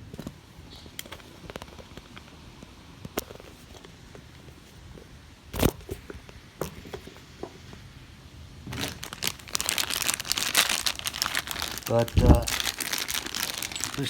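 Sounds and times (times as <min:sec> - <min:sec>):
packaging crinkling: 0:08.7 - 0:14.0.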